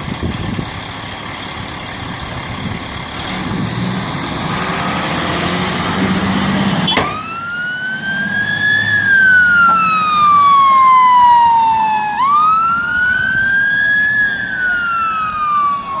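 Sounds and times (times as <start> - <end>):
fire engine running: 0.0 - 16.0
siren wailing: 6.8 - 16.0.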